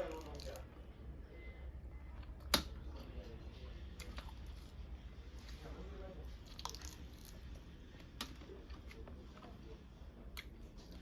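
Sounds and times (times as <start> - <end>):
person chewing food: 3.9 - 4.8, 6.4 - 9.5.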